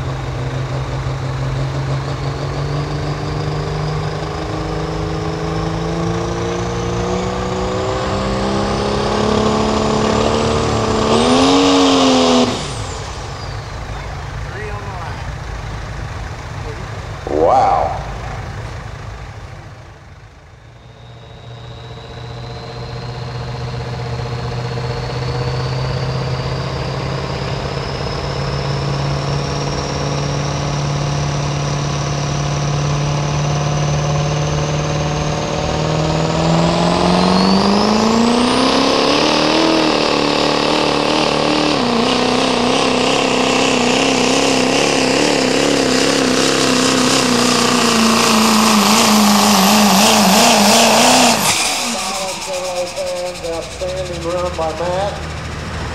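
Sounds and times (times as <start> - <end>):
diesel truck engine under load: 0.0 - 55.9
turbocharger whistle: 1.6 - 15.2, 20.5 - 55.9.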